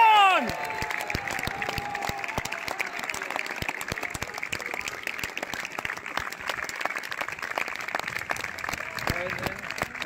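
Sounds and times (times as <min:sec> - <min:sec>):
crowd shouting: 0:00.0 - 0:04.2
crowd clapping: 0:00.0 - 0:10.0.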